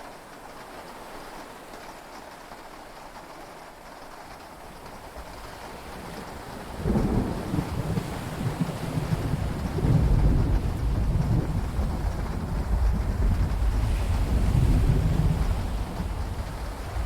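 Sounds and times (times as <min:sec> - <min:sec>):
sea: 0:00.0 - 0:17.0
steady rain: 0:00.0 - 0:17.0
thunder rumbling: 0:06.7 - 0:17.0.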